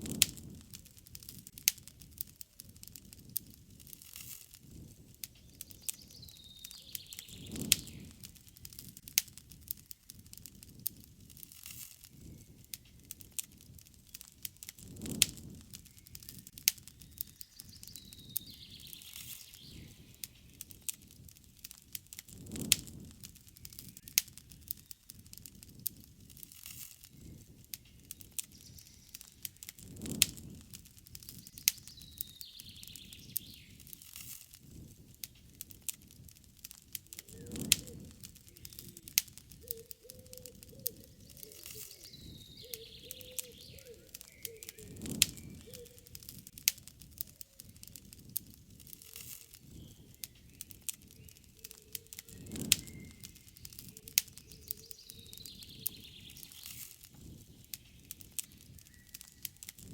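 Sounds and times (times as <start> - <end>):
campfire crackling and popping: 0.0 - 59.9
faint bird calls: 5.4 - 8.2, 37.0 - 46.4, 48.9 - 59.6.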